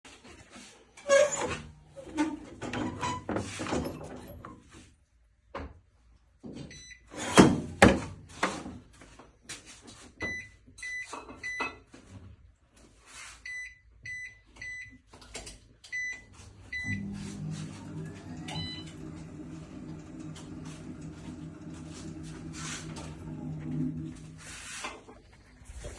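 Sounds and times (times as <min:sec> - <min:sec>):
motor humming: 0:16.8 - 0:24.5.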